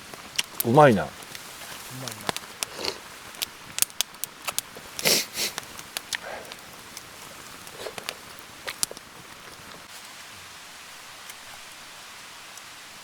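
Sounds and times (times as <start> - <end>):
person sniffing: 2.7 - 3.0, 5.0 - 5.6, 6.2 - 6.6.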